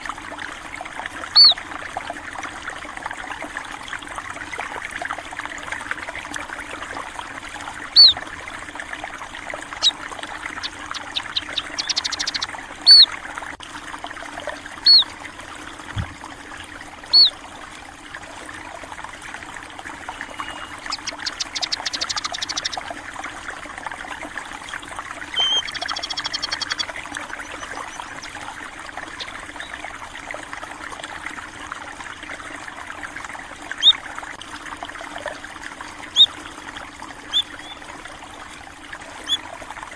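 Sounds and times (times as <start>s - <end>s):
stream trickling and gurgling: 0.0s - 39.9s
bird chattering trills: 1.4s - 1.6s, 8.0s - 8.2s, 9.8s - 13.1s, 14.8s - 15.1s, 17.1s - 17.3s, 20.1s - 22.9s, 25.3s - 28.4s, 29.0s - 29.8s, 36.1s - 36.3s, 37.3s - 37.8s
high bird chirps: 1.4s - 1.6s, 8.0s - 8.2s, 9.8s - 13.1s, 14.9s - 15.1s, 17.1s - 17.3s, 20.1s - 22.9s, 25.3s - 28.4s.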